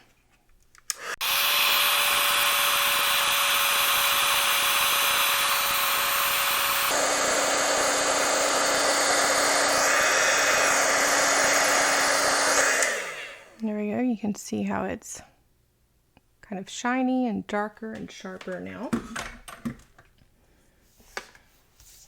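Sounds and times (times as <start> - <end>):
hot-air gun blowing and whining: 0.9 - 13.6.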